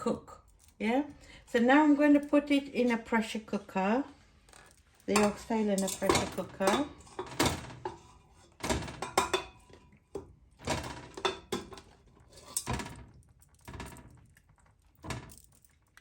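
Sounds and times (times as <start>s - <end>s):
meat thunking into metal pot: 5.1s - 11.9s.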